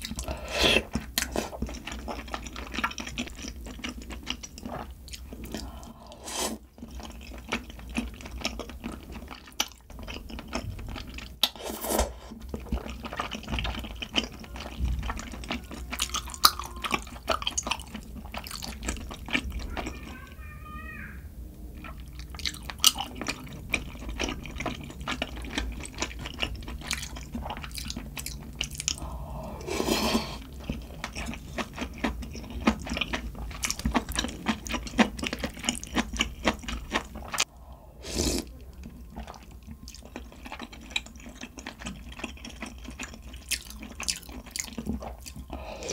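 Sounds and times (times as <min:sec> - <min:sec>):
slurping: 0:00.0 - 0:03.5, 0:04.6 - 0:08.4, 0:11.4 - 0:17.6, 0:28.8 - 0:32.0, 0:37.1 - 0:38.6
chewing: 0:00.0 - 0:11.6, 0:12.2 - 0:20.2, 0:21.8 - 0:45.9.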